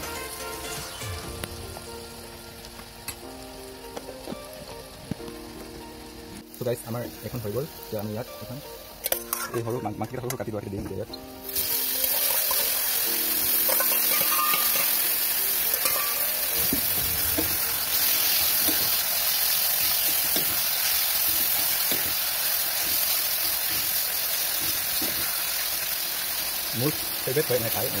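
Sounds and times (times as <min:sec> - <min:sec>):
chicken sizzling in hot oil: 0:00.0 - 0:28.0
metal spatula scraping pan: 0:09.1 - 0:09.8.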